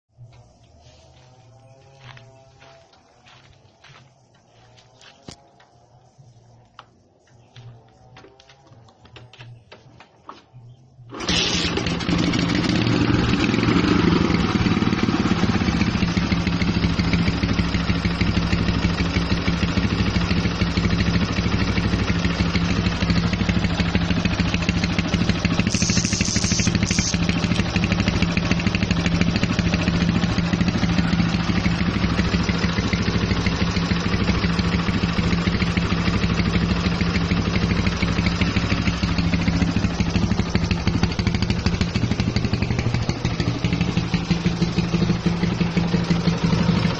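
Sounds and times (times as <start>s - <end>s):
motorcycle engine idling: 3.2s - 46.9s
short high-pitched sound: 25.6s - 27.3s.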